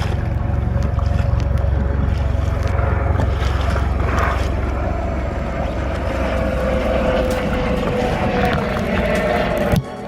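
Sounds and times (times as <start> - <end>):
helicopter droning: 0.0 - 10.0
wind rumbling on microphone: 0.0 - 10.0.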